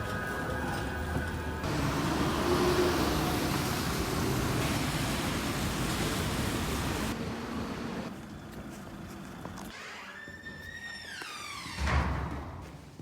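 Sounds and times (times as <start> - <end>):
moving vehicle rumble: 1.6 - 9.7.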